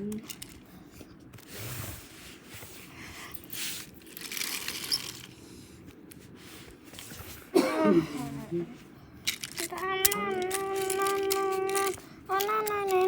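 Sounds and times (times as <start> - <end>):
toy trains rustling and clicking: 0.0 - 7.5, 9.2 - 13.0
child vocal sound: 7.6 - 8.8, 9.6 - 13.0.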